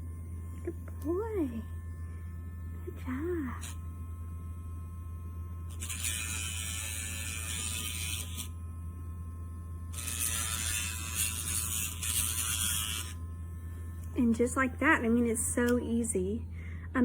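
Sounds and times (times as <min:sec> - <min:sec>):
nail grinder whining: 0:05.6 - 0:08.6, 0:09.9 - 0:13.3.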